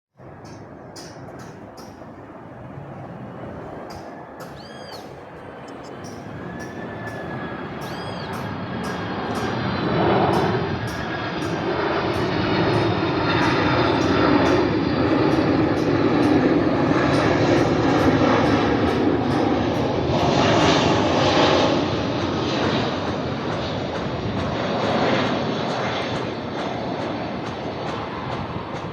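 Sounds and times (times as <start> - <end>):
jet engines rumbling: 0.2 - 28.9.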